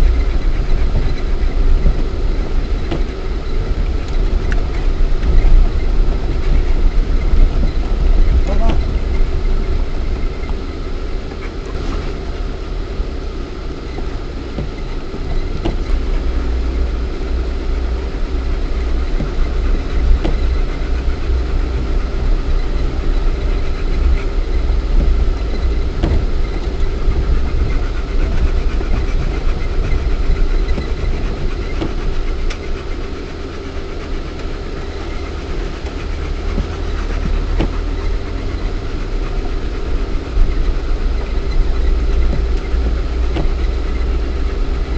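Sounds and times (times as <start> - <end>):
car engine running at low revs: 0.0 - 44.9
faint clicks and knocks: 13.9 - 17.0, 18.4 - 44.9.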